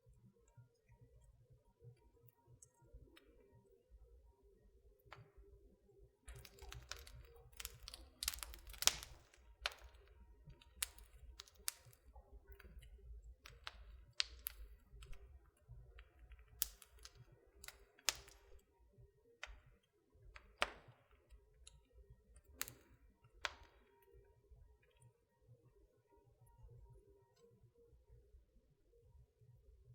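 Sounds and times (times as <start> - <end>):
fire popping and snapping: 6.3 - 18.6, 19.4 - 21.8, 22.4 - 23.9.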